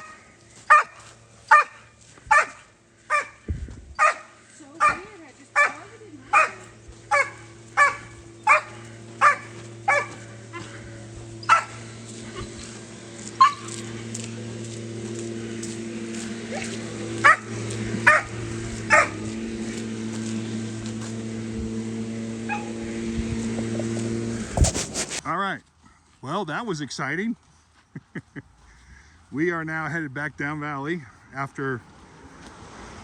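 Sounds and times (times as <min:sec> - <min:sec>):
dog barking: 0:00.0 - 0:03.4, 0:04.0 - 0:10.7, 0:11.5 - 0:11.8, 0:13.4 - 0:13.7, 0:17.2 - 0:18.3, 0:18.9 - 0:19.2, 0:22.5 - 0:22.7
steady low hum: 0:00.0 - 0:25.2.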